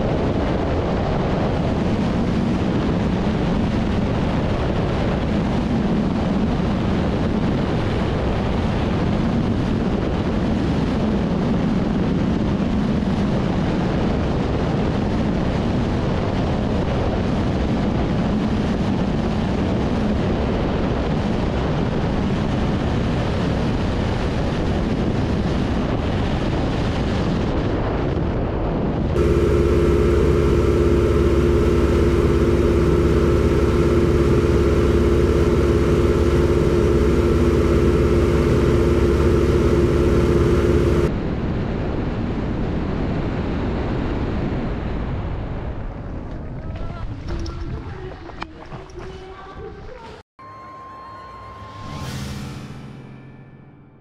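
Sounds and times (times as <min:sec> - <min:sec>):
aircraft engine running: 0:29.1 - 0:41.1.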